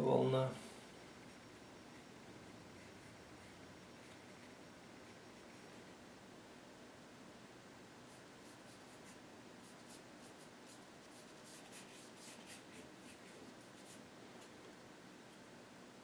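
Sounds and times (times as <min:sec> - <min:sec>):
paintbrush strokes: 0:02.7 - 0:05.9, 0:08.1 - 0:14.0.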